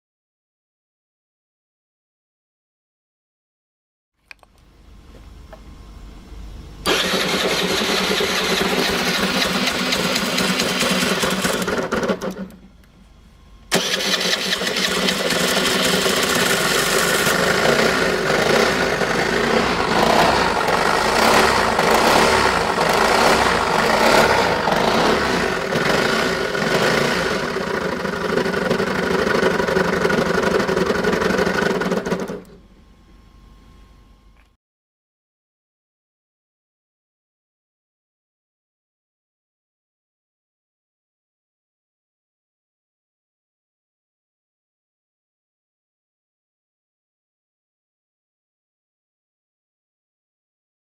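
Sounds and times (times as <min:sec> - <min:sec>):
abnormal engine noise: 0:06.8 - 0:32.8
scooter engine running: 0:06.9 - 0:12.4, 0:13.7 - 0:32.5.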